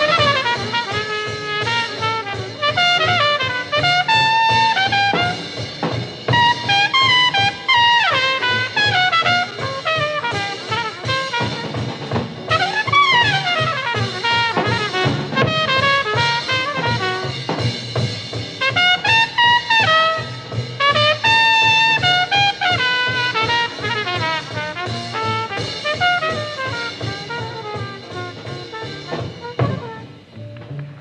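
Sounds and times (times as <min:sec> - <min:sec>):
trumpet playing fast runs: 0:00.0 - 0:30.6
bass: 0:00.0 - 0:31.0
drum kit: 0:00.0 - 0:31.0.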